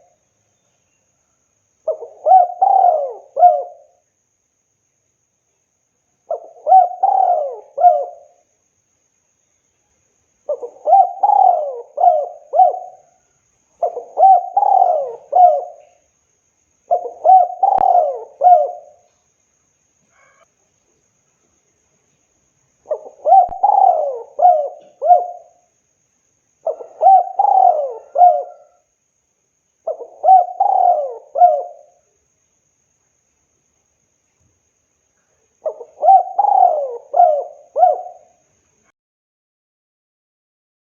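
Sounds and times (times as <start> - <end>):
dove cooing: 1.9 - 4.0, 6.3 - 8.4, 10.5 - 13.1, 13.8 - 16.0, 16.9 - 19.1, 22.9 - 25.6, 26.6 - 28.9, 29.8 - 32.0, 35.6 - 38.4.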